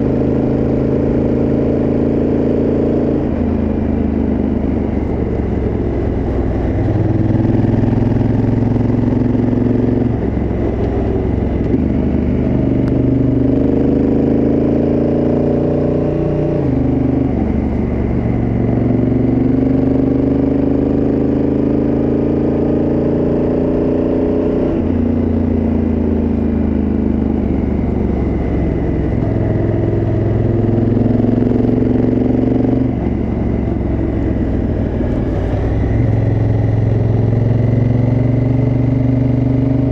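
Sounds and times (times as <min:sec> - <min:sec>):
motorcycle engine while riding: 0:00.0 - 0:39.9.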